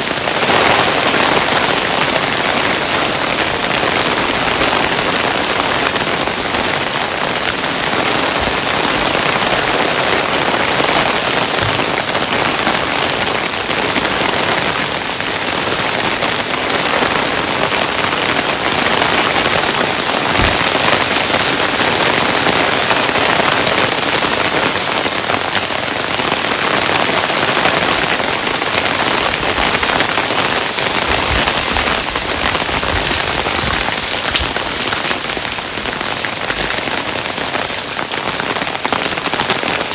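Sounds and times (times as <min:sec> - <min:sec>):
hailstones pattering: 0:00.2 - 0:39.9
heavier hail knocks: 0:11.4 - 0:12.3, 0:19.4 - 0:21.9, 0:28.8 - 0:36.8.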